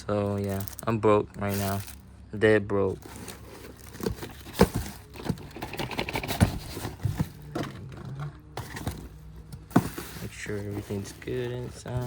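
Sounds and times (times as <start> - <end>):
packaging crinkling: 3.0 - 7.7.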